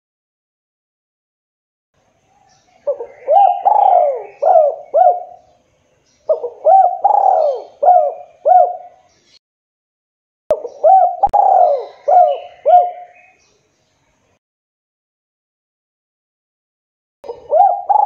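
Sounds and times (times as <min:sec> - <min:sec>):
dove cooing: 0:02.8 - 0:05.6, 0:06.3 - 0:09.1, 0:10.5 - 0:13.3, 0:17.2 - 0:18.0.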